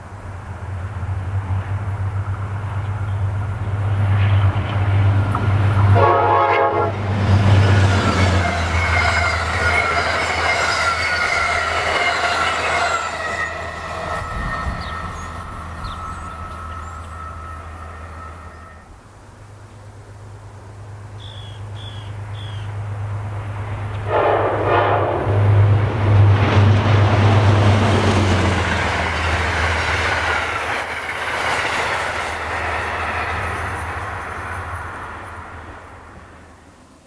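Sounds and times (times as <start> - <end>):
train wheels rolling on rails: 0.0 - 37.0
train signal blast: 23.9 - 27.6.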